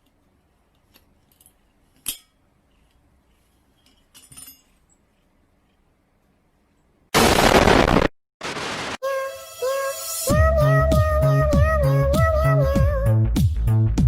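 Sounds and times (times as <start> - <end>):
light clinks: 3.7 - 5.0.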